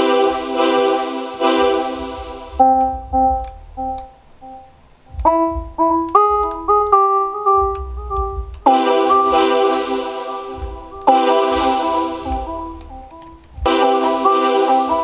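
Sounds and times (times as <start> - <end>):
electric piano melody: 0.0 - 15.0
low bass pulse: 1.6 - 13.8.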